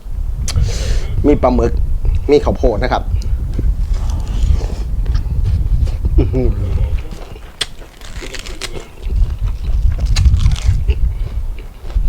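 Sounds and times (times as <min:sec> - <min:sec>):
mouth clicks and smacks: 0:00.4 - 0:00.6, 0:04.0 - 0:12.0
person chewing and biting: 0:03.8 - 0:12.0.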